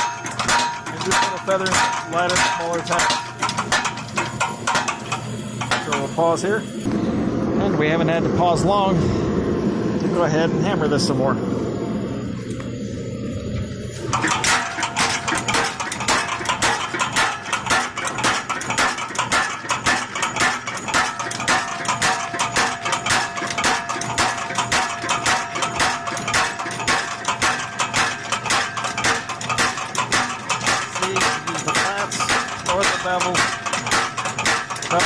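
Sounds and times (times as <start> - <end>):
power hammer striking hot steel: 0.0 - 7.0, 14.1 - 35.0
faint metallic ringing tone: 4.4 - 6.9.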